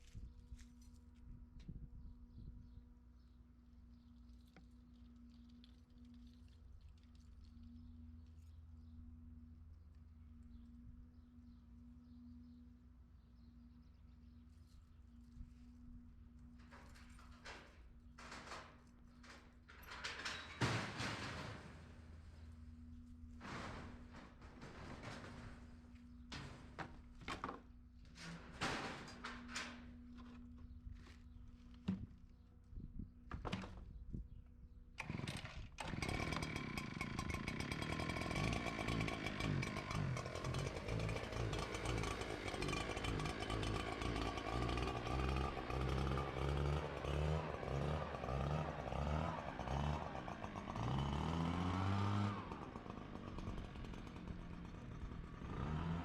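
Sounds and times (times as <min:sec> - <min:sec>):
small gas engine revving: 0:35.0 - 0:56.0.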